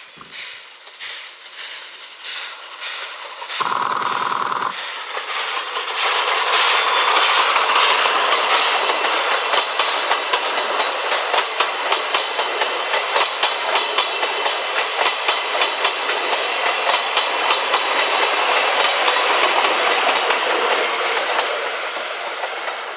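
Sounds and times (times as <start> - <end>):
train wheels clattering over joints: 0.1 - 22.9.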